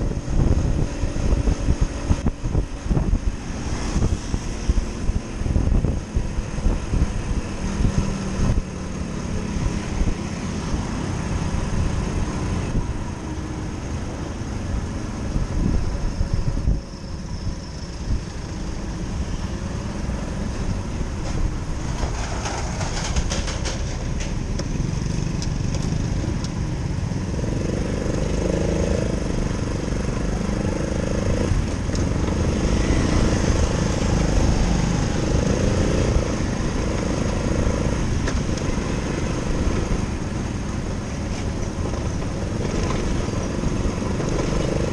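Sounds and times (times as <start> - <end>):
road noise: 0.0 - 44.9.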